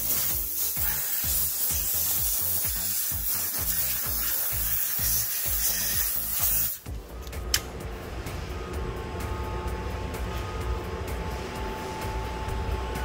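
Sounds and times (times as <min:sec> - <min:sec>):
pressurised spray hissing: 0:00.0 - 0:06.9
background music with beat: 0:00.0 - 0:13.0.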